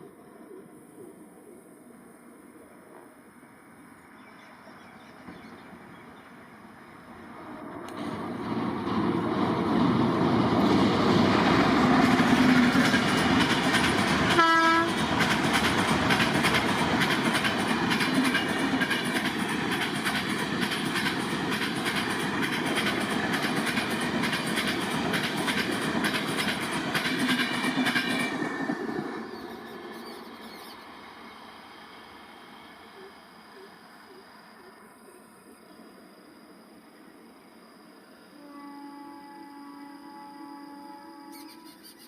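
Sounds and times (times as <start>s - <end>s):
train passing at speed: 0.0s - 42.0s
train horn note: 14.3s - 15.0s, 38.3s - 41.8s.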